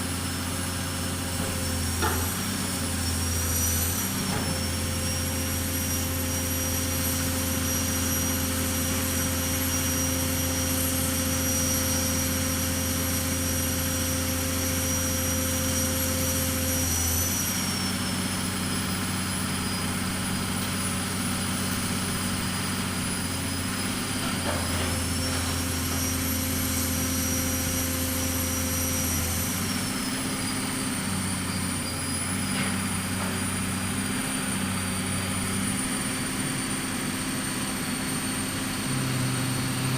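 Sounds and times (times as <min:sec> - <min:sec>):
pile-driving machine engine drone: 0:00.0 - 0:39.9.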